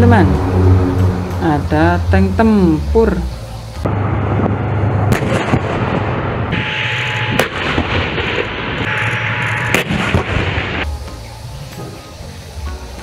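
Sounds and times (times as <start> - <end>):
toy cannon fire and explosions: 6.6 - 10.9.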